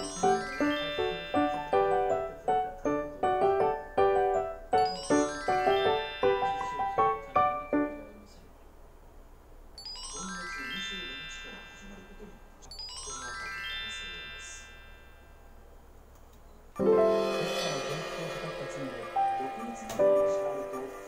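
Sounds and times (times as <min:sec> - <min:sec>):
quick bright keyboard notes: 0:00.0 - 0:08.1
rising shimmering tone sweeps: 0:16.8 - 0:21.0.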